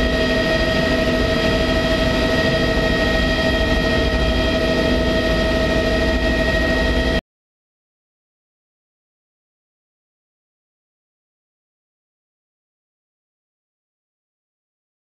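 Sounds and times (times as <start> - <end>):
helicopter rotor and turbine drone: 0.0 - 7.2
high turbine whine: 0.0 - 7.2.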